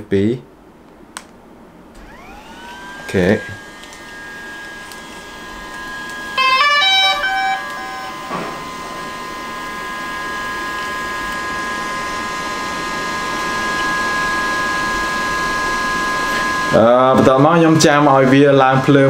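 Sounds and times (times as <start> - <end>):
click: 1.2 - 1.4
high-pitched whine: 2.0 - 19.0
electronic beep melody: 6.4 - 8.4.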